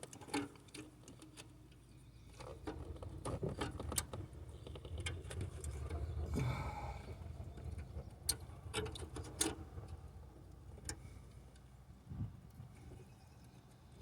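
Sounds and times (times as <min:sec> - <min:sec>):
low rumble: 0:05.7 - 0:08.7.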